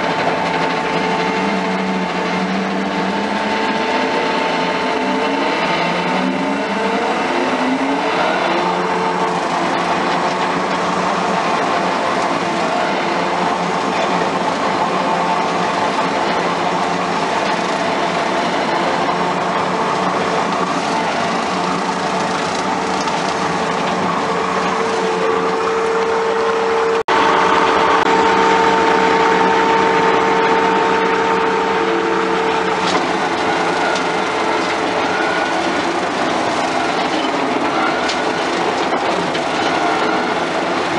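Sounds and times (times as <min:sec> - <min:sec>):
rotary mower whine: 0:00.0 - 0:40.9
skid steer engine running: 0:00.0 - 0:40.9.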